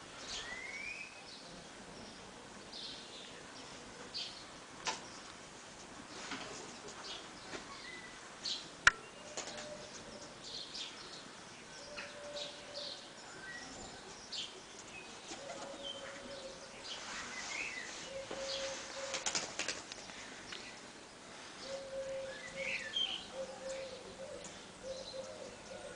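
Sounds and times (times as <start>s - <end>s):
birds chirping: 6.7s - 25.9s.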